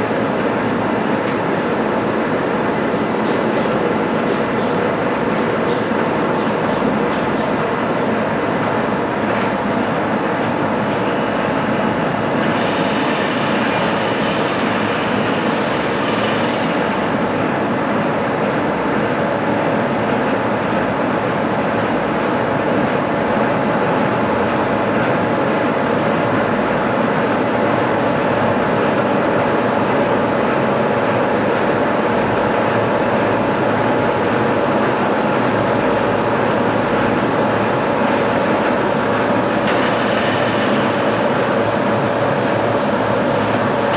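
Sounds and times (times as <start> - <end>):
machine tool machining steel: 12.4 - 16.9.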